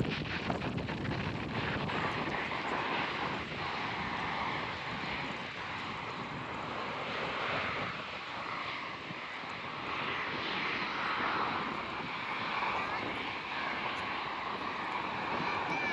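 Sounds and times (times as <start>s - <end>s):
jet engines roaring: 0.0s - 15.9s.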